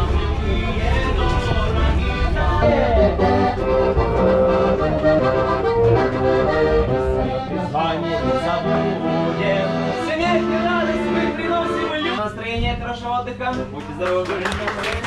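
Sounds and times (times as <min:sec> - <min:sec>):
accordion melody: 0:00.0 - 0:12.5.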